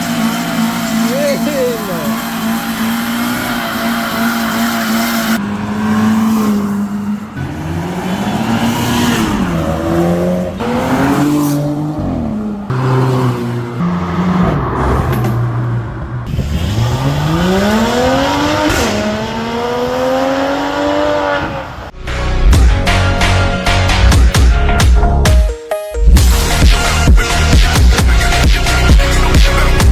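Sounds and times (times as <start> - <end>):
sports car engines revving: 0.0 - 22.0.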